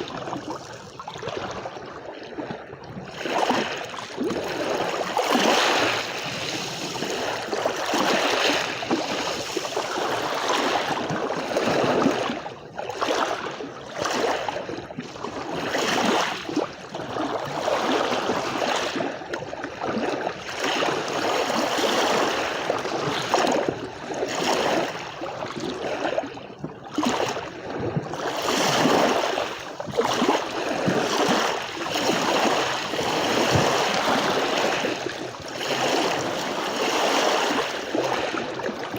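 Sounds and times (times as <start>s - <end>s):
sea waves washing onto beach: 28.2s - 38.9s.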